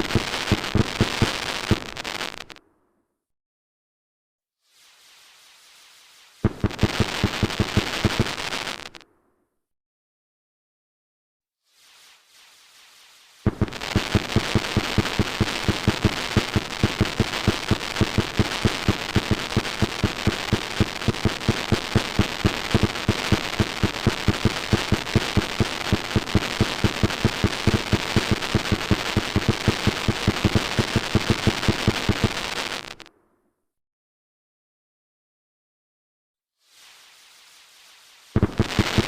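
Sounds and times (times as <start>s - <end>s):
fireworks banging: 0.0s - 2.6s, 6.4s - 9.0s, 13.4s - 33.1s, 38.3s - 39.0s
fireworks crackling: 0.0s - 2.6s, 4.7s - 9.0s, 11.7s - 33.1s, 36.6s - 39.0s.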